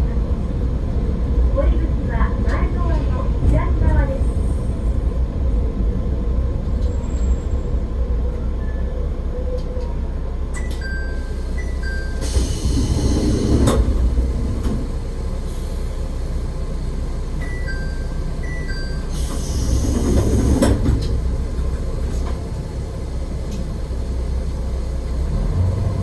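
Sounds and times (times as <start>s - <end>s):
railcar rumbling along track: 0.0s - 26.0s.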